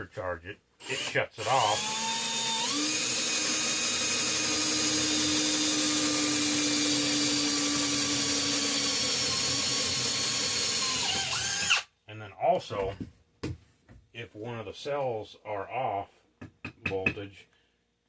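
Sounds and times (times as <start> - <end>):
electric power drill running: 0.8 - 11.8.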